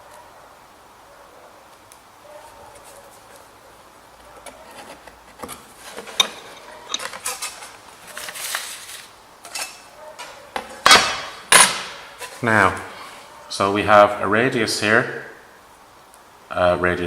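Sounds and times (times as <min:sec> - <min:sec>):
metal scraping: 0:04.5 - 0:09.9
metal tools clattering: 0:05.9 - 0:09.9.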